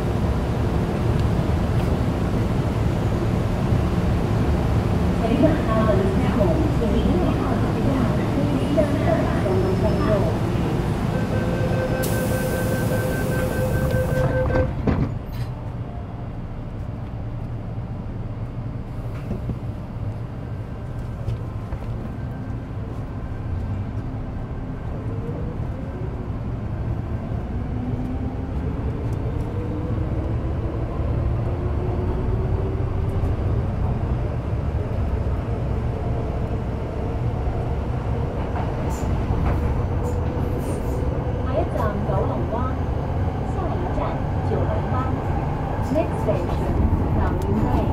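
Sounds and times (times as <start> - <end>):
rumble of wheels on track: 0.0 - 47.9.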